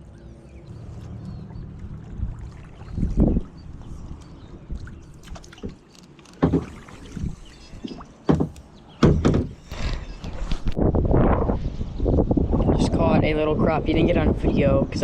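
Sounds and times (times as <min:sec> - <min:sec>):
paddle strokes in water: 0:00.7 - 0:08.7
knocks against kayak hull: 0:06.4 - 0:06.9, 0:07.9 - 0:09.8.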